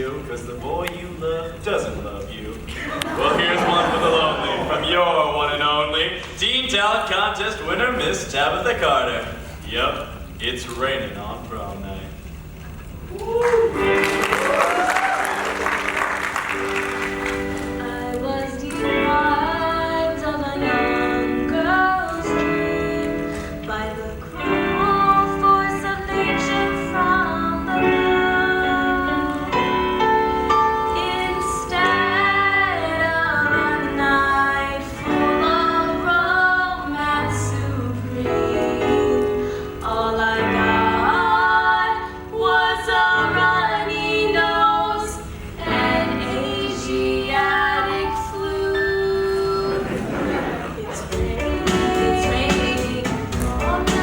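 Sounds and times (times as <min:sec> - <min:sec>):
woman singing sad pop song: 0:17.7 - 0:29.6, 0:30.8 - 0:50.0, 0:50.9 - 0:54.0
instrumental accompaniment: 0:45.6 - 0:54.0.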